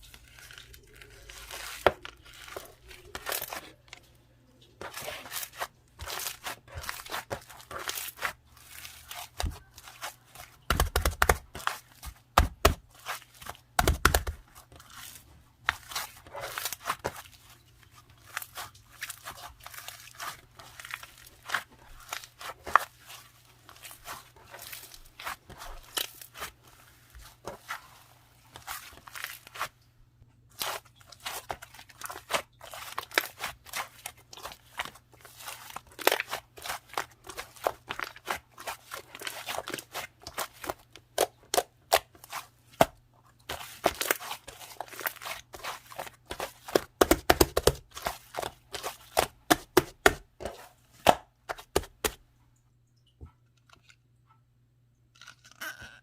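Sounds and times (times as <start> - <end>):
foam slime crunching crackle: 0.0 - 3.8, 12.9 - 29.7, 30.5 - 42.5, 43.5 - 49.4.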